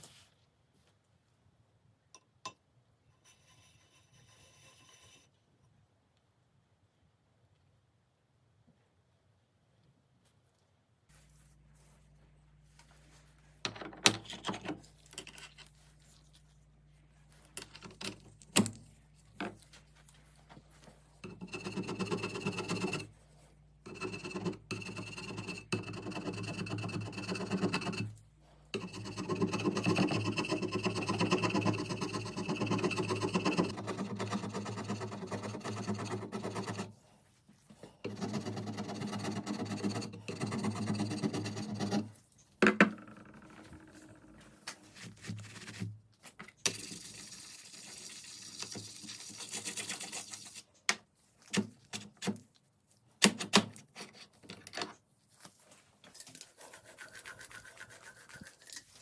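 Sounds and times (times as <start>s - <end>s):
milling cutter scraping metal: 21.2s - 23.1s, 23.9s - 28.2s, 28.8s - 36.9s, 38.0s - 42.2s.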